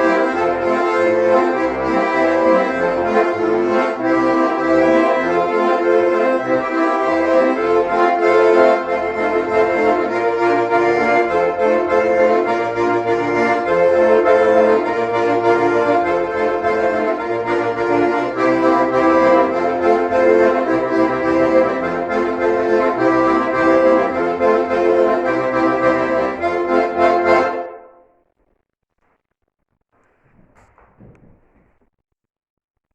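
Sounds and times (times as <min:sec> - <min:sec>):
button accordions playing dance tune: 0:00.0 - 0:28.0.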